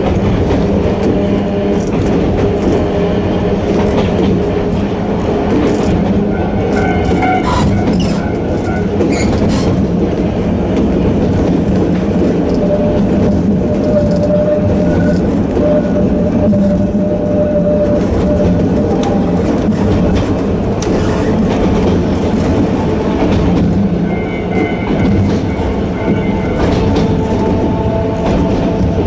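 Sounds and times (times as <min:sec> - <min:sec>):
train wheels and motors rumbling: 0:00.0 - 0:29.0
wheel squeals: 0:05.8 - 0:09.8, 0:12.4 - 0:19.4.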